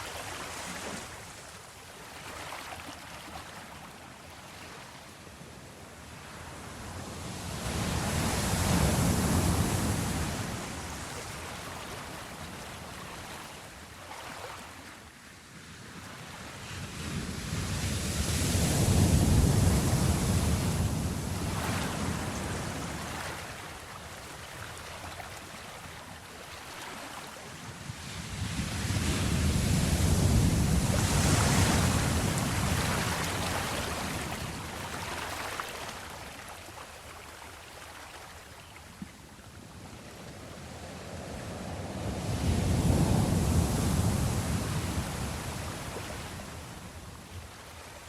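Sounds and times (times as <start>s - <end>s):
ocean waves breaking: 17.2s - 38.4s, 40.7s - 47.2s.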